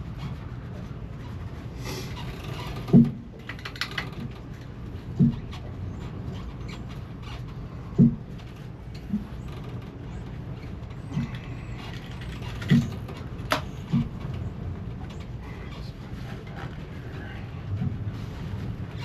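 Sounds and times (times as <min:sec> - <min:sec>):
steady low hum: 0:00.0 - 0:19.0
dull knocks: 0:08.0 - 0:08.3.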